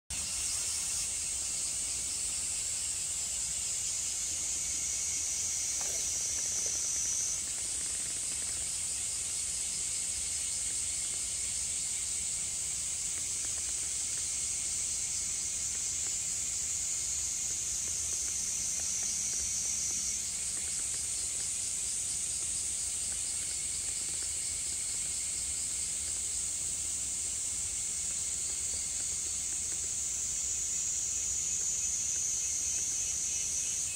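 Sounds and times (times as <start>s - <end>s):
insects shrilling: 0.1s - 33.9s.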